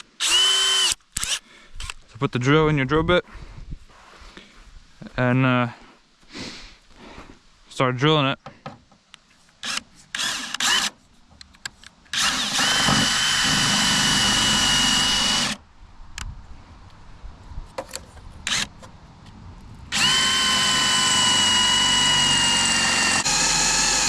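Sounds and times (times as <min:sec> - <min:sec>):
cordless drill whining: 0:00.0 - 0:02.0, 0:09.6 - 0:10.9, 0:12.1 - 0:15.6, 0:18.5 - 0:18.7, 0:19.9 - 0:24.0.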